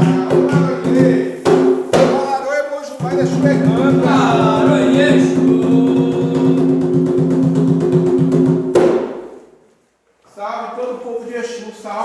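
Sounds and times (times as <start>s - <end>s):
person singing: 0.0s - 1.4s, 3.0s - 7.5s
hand drums beating: 0.0s - 9.4s.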